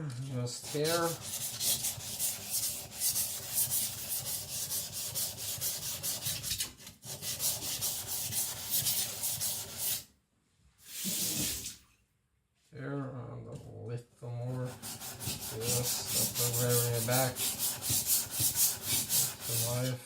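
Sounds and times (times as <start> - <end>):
blade scraping on whetstone: 0.6 - 10.0, 14.7 - 19.8.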